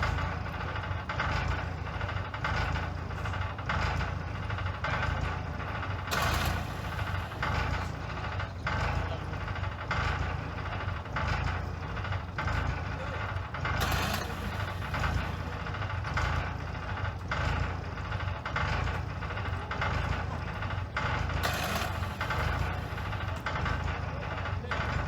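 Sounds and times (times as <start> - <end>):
bulldozer diesel engine under load: 0.0 - 25.0
harsh scraping and clanking: 5.1 - 9.5, 12.3 - 25.0.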